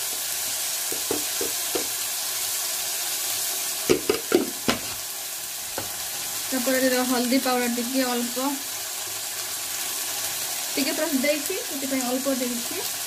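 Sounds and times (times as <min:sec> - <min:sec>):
masala sizzling in a pan: 0:00.0 - 0:13.0
spatula knocking and scraping pan: 0:00.9 - 0:02.0, 0:03.9 - 0:05.0, 0:05.8 - 0:06.0.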